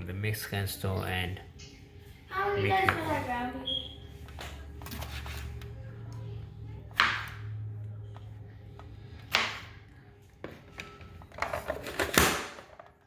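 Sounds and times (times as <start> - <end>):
kitchen utensil scraping: 4.3 - 5.8.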